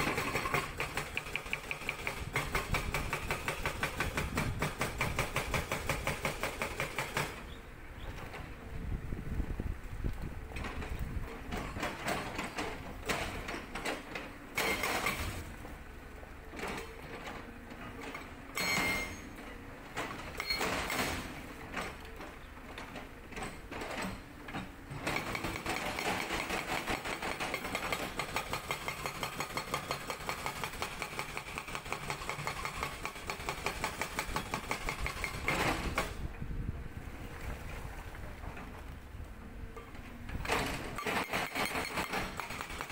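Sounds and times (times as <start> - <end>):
hydraulic breaker hammering rock: 0.0 - 7.6, 11.5 - 15.5, 18.0 - 19.4, 23.4 - 36.3, 40.4 - 42.9
excavator engine noise: 0.0 - 42.9.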